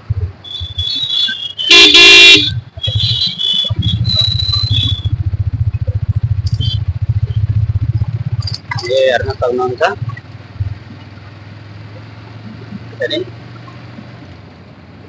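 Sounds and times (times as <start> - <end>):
motorcycle engine puttering: 0.0 - 14.6
vehicle horn blaring: 0.4 - 5.1.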